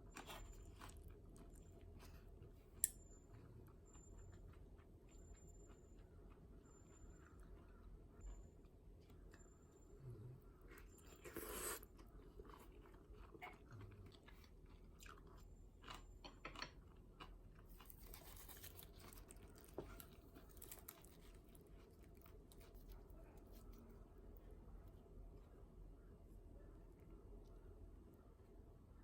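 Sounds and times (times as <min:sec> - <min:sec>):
person chewing: 0:10.7 - 0:23.8.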